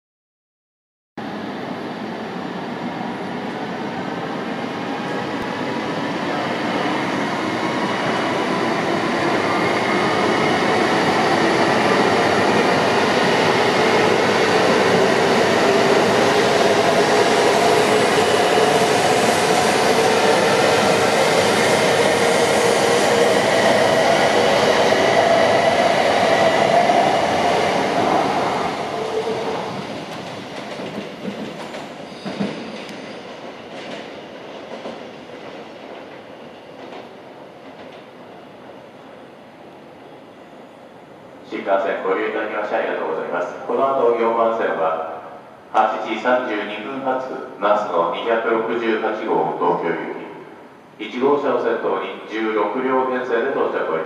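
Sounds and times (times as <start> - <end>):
train wheels rushing: 5.0 - 38.3.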